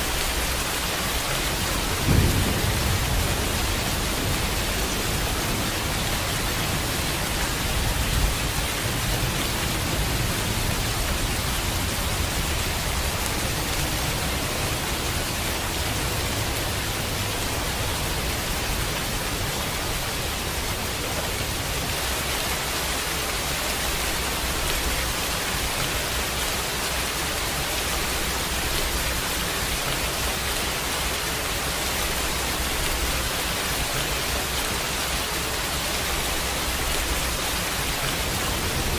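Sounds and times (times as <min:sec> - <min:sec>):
heavy rain hissing: 0:00.0 - 0:38.9
low rumble of thunder: 0:01.4 - 0:16.6.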